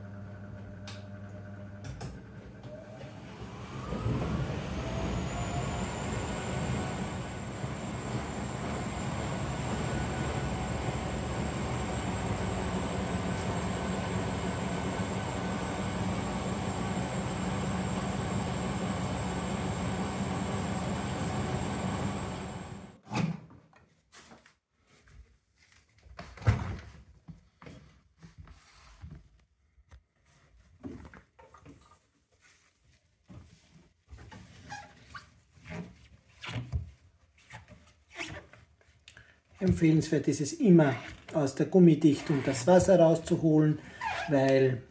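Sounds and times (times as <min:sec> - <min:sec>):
washing machine spinning: 0:00.0 - 0:23.0.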